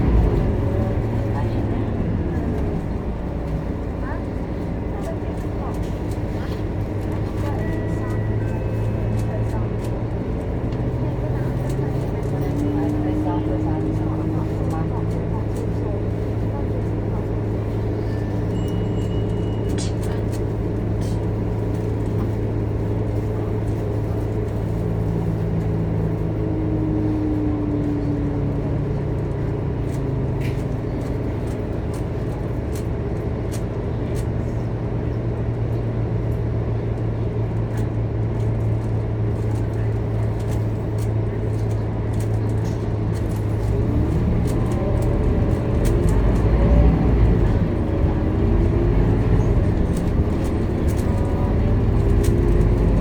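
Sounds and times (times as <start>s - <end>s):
bus diesel engine drone: 0.0s - 53.0s
deep low rumble: 0.0s - 53.0s
light rattles: 37.7s - 53.0s.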